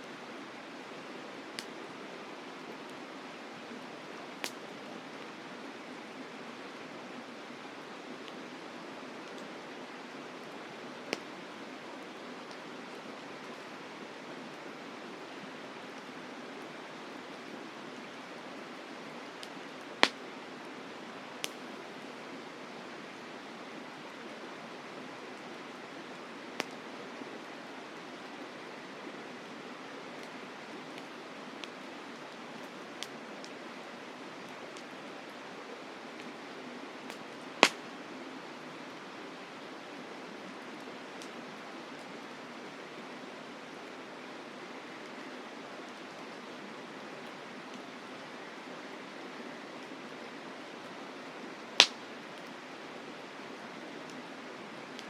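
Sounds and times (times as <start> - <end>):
campfire crackling and popping: 0.9 - 1.8, 3.8 - 5.4, 10.4 - 12.7, 18.7 - 20.4, 21.4 - 21.9, 26.5 - 26.8, 32.5 - 33.6, 37.0 - 37.9, 41.2 - 41.4, 51.7 - 52.6.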